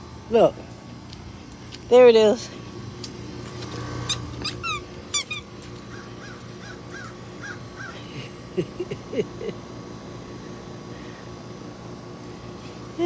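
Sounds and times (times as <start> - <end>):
low rising squeaks: 3.4 - 5.7
birds sharp falling calls: 5.8 - 8.1.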